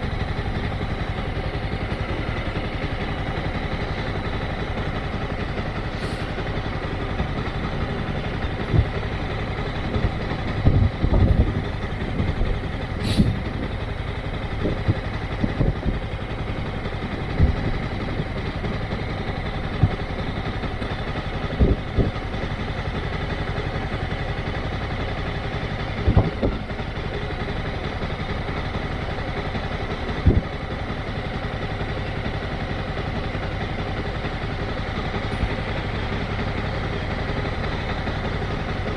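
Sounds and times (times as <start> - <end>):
motorcycle engine idling low: 0.0 - 38.9
brief hiss: 13.0 - 13.4.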